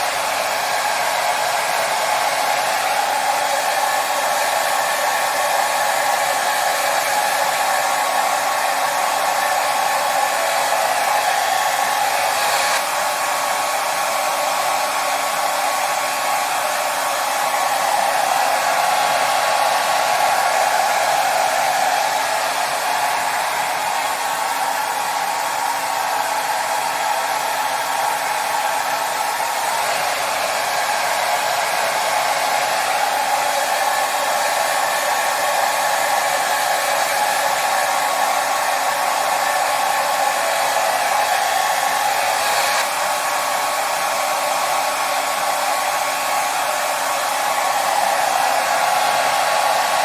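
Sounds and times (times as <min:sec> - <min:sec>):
hair dryer blowing: 0:00.0 - 0:50.0.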